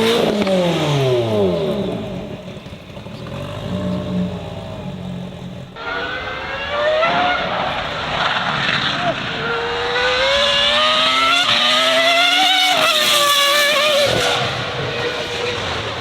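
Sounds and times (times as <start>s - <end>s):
car engine running low: 0.0s - 6.1s
car engine revving hard: 0.0s - 16.0s.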